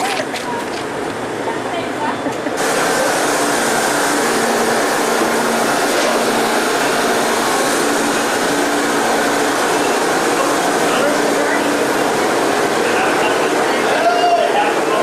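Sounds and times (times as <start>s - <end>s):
boiler-room machinery hum: 0.0s - 15.0s.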